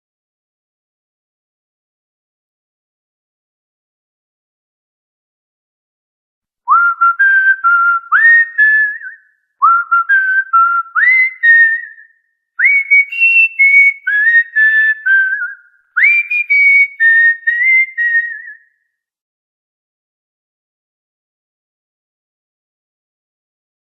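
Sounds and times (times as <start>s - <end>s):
cockatiel whistling a tune: 6.7s - 18.7s.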